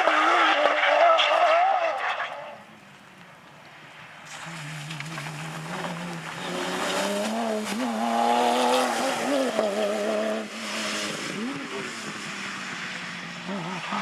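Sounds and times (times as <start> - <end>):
rally car engine passing by: 4.2 - 14.0.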